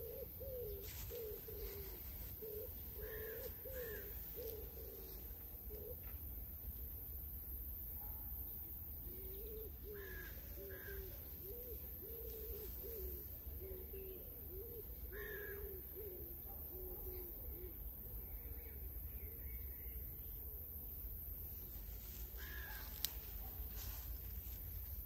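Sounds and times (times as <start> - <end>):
low cooing bird notes: 0.0 - 6.2, 9.0 - 19.9.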